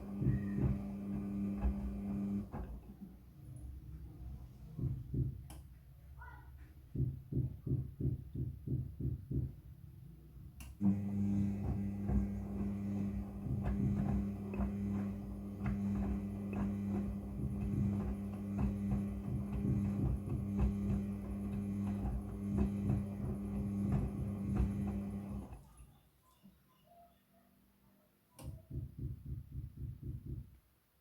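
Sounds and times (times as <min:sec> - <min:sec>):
washing machine knocking and rattling: 0:00.0 - 0:03.1, 0:04.7 - 0:05.5, 0:10.9 - 0:25.6, 0:28.5 - 0:30.5
washing machine motor hum: 0:00.0 - 0:05.3, 0:10.8 - 0:25.7.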